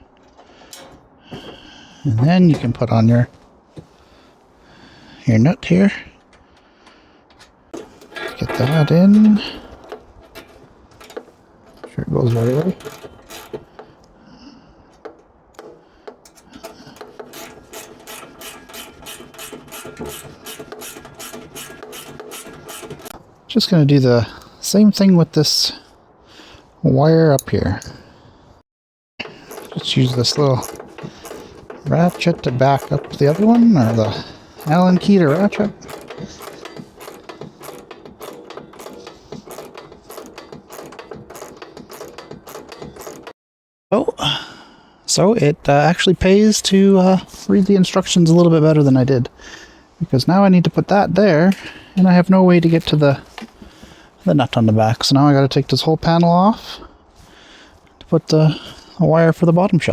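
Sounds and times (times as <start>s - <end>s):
ratchet wrench clicking: 9.5s - 13.9s, 15.6s - 23.2s, 29.3s - 43.3s.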